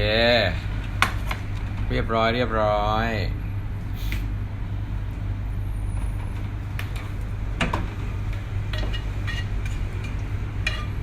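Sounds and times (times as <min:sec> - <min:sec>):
steady low hum: 0:00.0 - 0:11.0
kitchenware clinking: 0:08.7 - 0:11.0.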